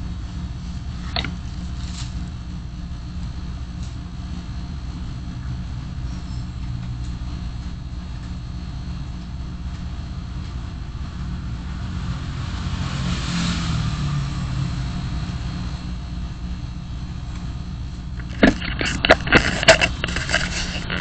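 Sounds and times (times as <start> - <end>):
car engine and road noise: 0.0 - 21.0
sharp irregular clicks and knocks: 18.2 - 21.0.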